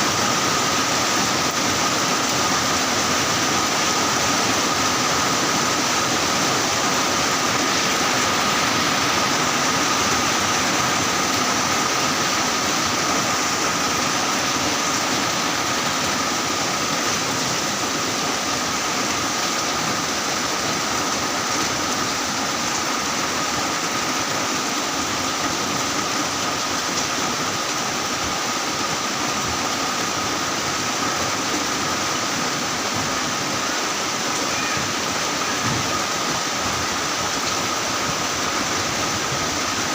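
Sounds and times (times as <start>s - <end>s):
heavy rain: 0.0s - 39.9s
faint high tone: 34.4s - 36.4s.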